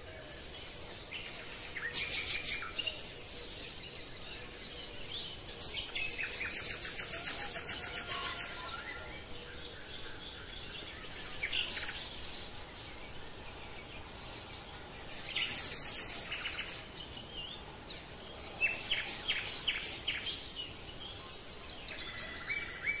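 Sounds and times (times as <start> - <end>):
birds chirping: 0.0 - 23.0
faint steady hiss: 0.0 - 23.0.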